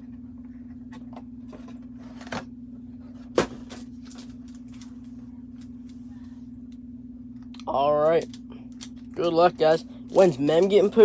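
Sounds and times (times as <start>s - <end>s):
steady low hum: 0.0s - 11.0s
card packs clicking and rustling: 3.2s - 5.7s, 10.1s - 11.0s.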